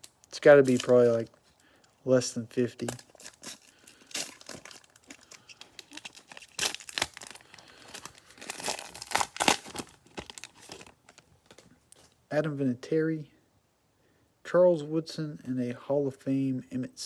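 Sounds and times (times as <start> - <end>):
cellophane wrapper crinkling and tearing: 0.0 - 1.9, 2.6 - 12.2.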